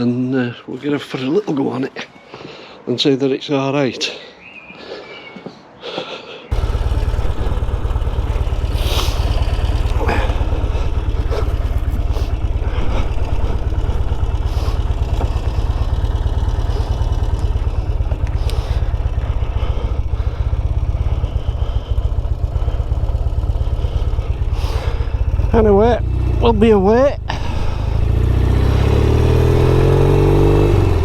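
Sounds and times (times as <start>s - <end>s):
motorcycle engine running: 6.5s - 31.0s.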